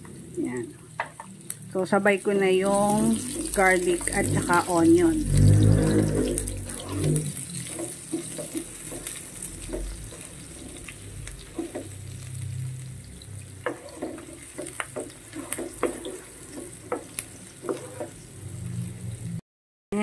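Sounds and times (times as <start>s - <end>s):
garlic and onion sizzling in oil: 0.0s - 19.4s
wooden spatula scraping pan: 2.6s - 12.2s, 13.6s - 18.7s.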